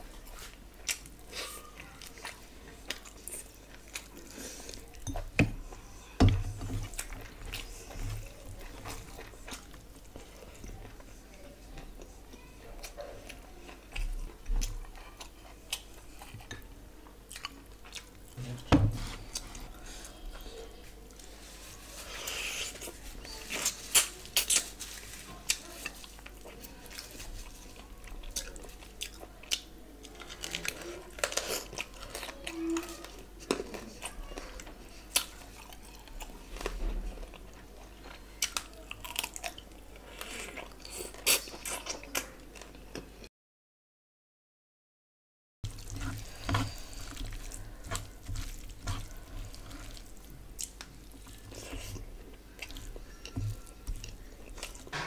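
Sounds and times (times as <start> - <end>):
person chewing crunchy food: 0.2 - 11.1, 17.2 - 18.5, 21.1 - 43.1, 45.7 - 55.0.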